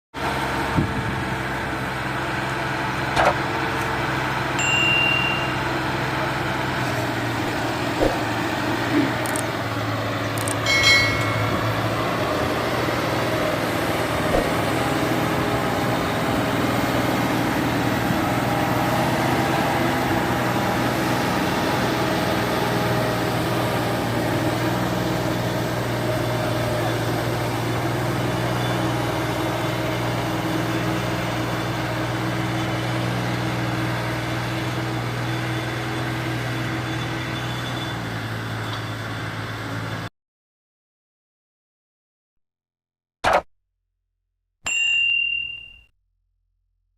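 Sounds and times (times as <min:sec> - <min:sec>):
tractor engine running: 0:00.2 - 0:40.1
short high ringing tones: 0:04.6 - 0:06.3, 0:10.4 - 0:12.1, 0:44.7 - 0:45.9
sharp clicks: 0:09.2 - 0:09.5, 0:10.3 - 0:10.6.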